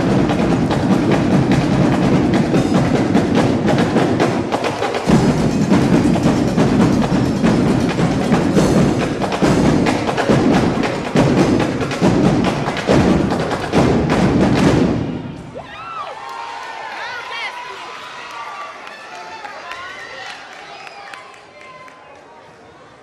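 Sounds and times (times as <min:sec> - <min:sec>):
drum section playing: 0:00.0 - 0:15.6.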